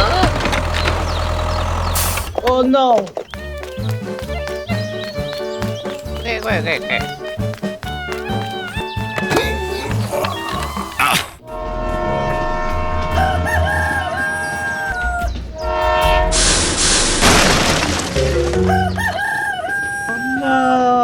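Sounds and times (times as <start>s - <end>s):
background music: 3.2s - 16.4s
wavering pitched calls: 3.3s - 11.7s, 13.1s - 15.9s
loud burst of noise: 15.9s - 18.2s.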